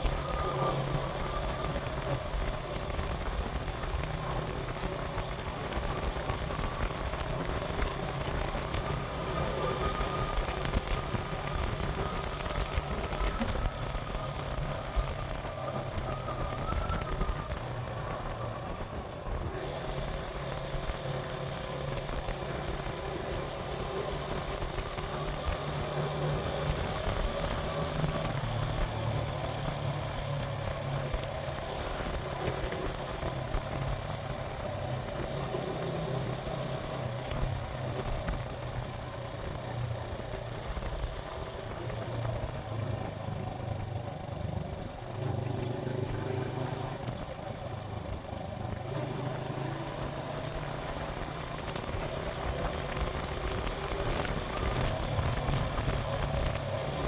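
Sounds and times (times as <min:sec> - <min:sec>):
wind noise: 0:00.0 - 0:35.6, 0:50.8 - 0:57.0
motorcycle engine running: 0:00.0 - 0:57.0.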